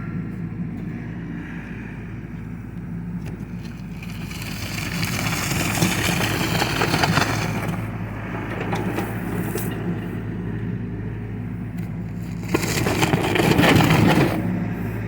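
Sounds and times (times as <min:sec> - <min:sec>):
excavator diesel engine: 0:00.0 - 0:15.0
bucket crunching and cracking: 0:03.6 - 0:07.9, 0:12.1 - 0:14.6.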